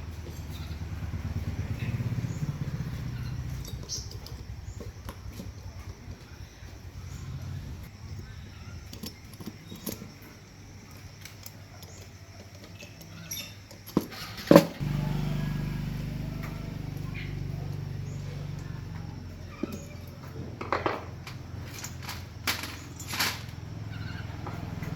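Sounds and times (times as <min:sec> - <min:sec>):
small motor humming: 0:14.8 - 0:20.3.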